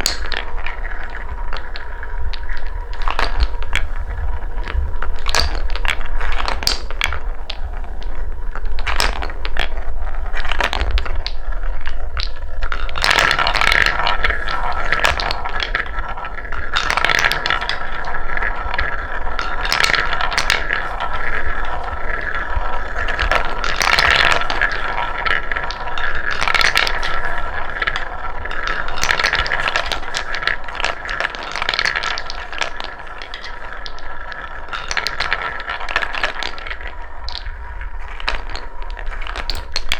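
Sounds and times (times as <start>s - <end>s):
balls rolling on wooden track: 0.0s - 39.9s.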